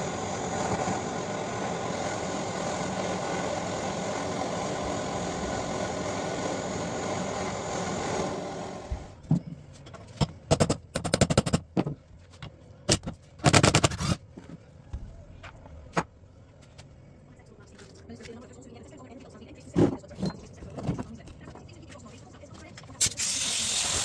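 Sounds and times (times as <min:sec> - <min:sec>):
power tool running: 0:00.0 - 0:09.1
short bursts of power tool: 0:23.0 - 0:24.0.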